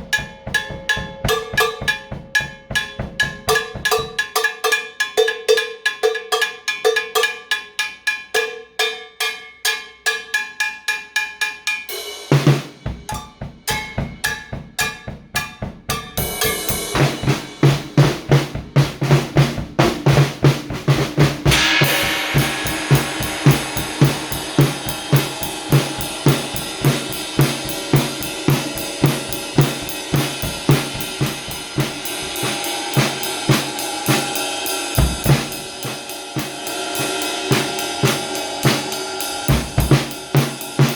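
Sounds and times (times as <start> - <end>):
bass drum and snare: 0.0 - 4.2, 12.3 - 40.9
drum kit groove: 0.0 - 5.4, 11.6 - 40.9
cowbell strikes: 0.0 - 11.9, 13.1 - 17.5, 21.5 - 33.2
cymbal crash: 16.2 - 18.4, 21.0 - 40.9.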